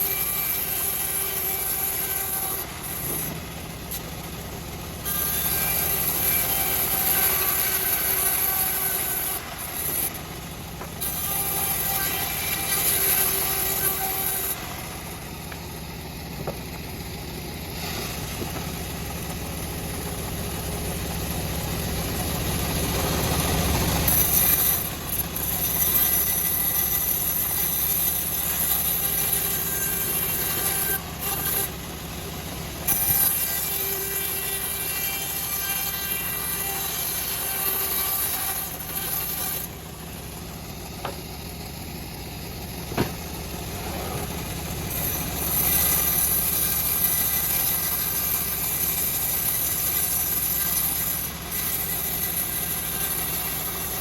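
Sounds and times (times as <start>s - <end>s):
high hiss of sawing: 0.0s - 4.1s, 5.0s - 10.2s, 11.1s - 15.4s, 23.0s - 31.8s, 32.8s - 39.8s, 44.9s - 54.0s
bandsaw mill droning: 0.0s - 54.0s.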